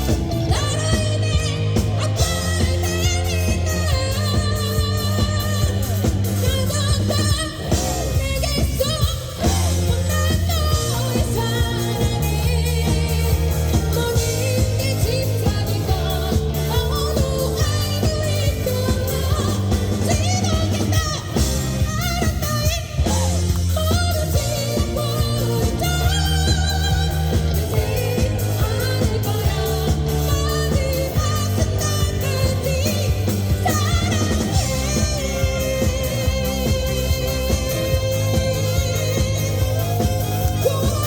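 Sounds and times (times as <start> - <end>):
amplified bass: 0.0 - 41.0
person singing with vibrato: 0.0 - 41.0
steady drum beat: 0.0 - 41.0.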